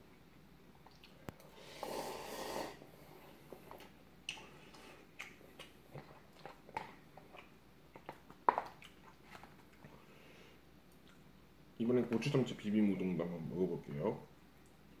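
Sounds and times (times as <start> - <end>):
chewing noodles: 3.5 - 10.0.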